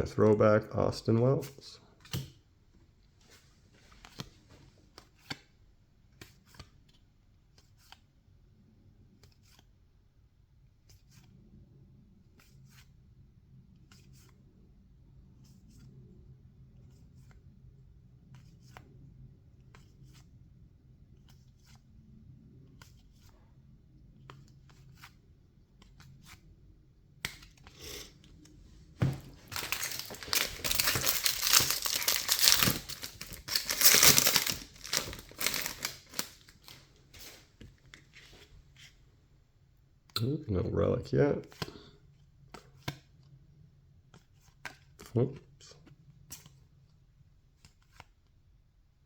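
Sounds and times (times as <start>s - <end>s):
foil wrapper tearing and crinkling: 29.4s - 37.4s.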